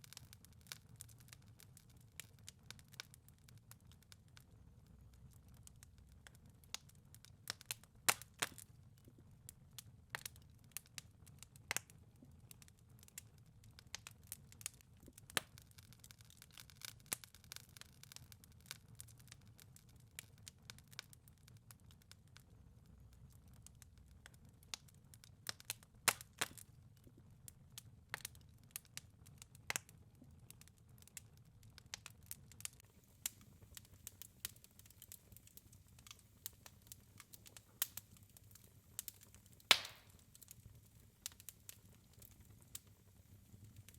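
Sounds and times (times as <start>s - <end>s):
wood fire pops and snaps: 0.0s - 43.9s
low rumble of flames: 21.8s - 43.9s.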